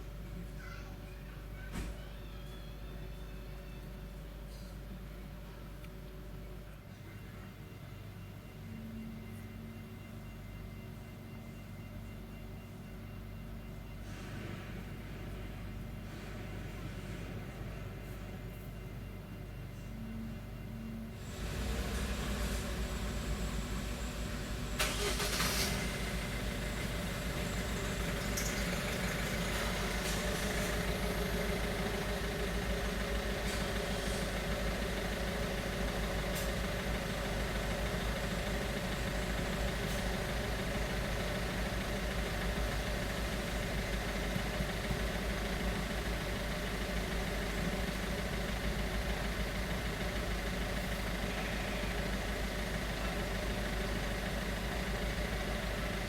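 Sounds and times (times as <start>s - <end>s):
car engine idling: 21.2s - 56.0s.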